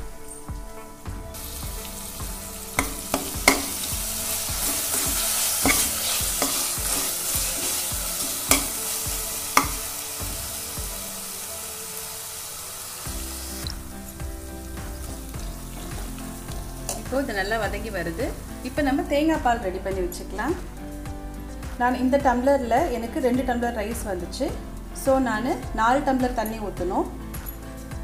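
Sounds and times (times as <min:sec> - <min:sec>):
food sizzling in hot oil: 0:01.3 - 0:22.1
spoon clinking against pot: 0:02.8 - 0:03.8, 0:08.5 - 0:08.8.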